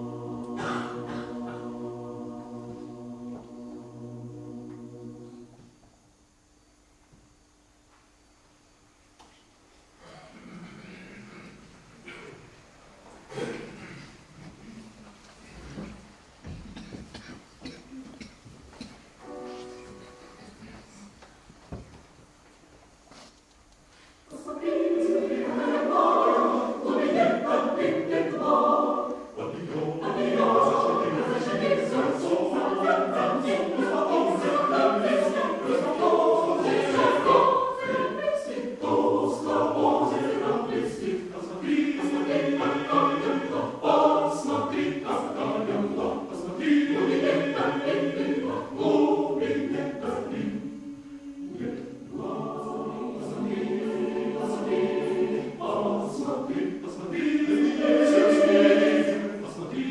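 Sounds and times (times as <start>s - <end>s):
choir singing unaccompanied: 0.0s - 5.7s, 24.3s - 59.9s.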